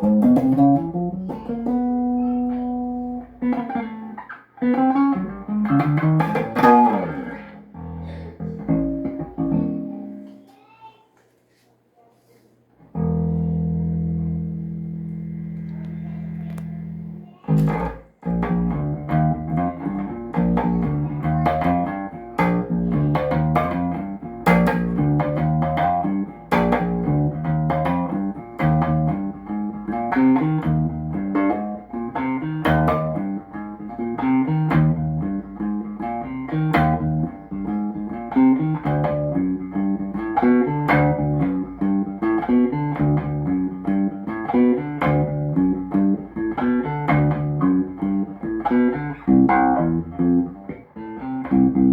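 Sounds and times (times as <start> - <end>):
electric bass plucked notes: 0.0 - 10.4, 12.9 - 51.9.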